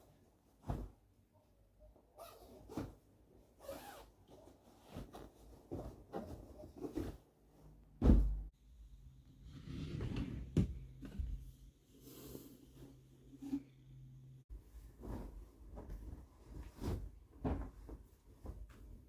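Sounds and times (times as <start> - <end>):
loud thump: 8.0 - 8.4.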